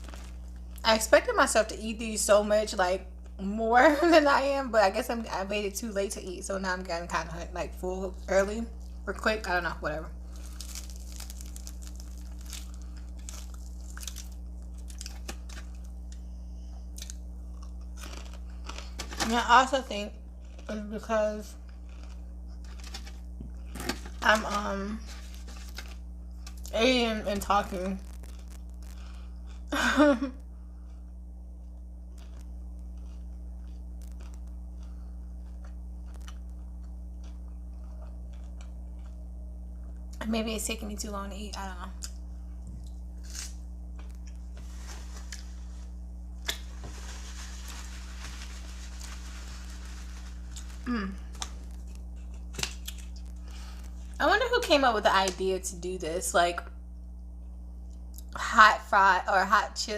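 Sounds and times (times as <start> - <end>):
chewing crunchy chicken wings: 0.0 - 0.9, 10.2 - 16.2, 16.9 - 19.2, 20.4 - 20.8, 21.5 - 24.3, 28.0 - 29.8, 30.7 - 40.2, 46.4 - 54.2
low electrical hum: 0.0 - 59.9.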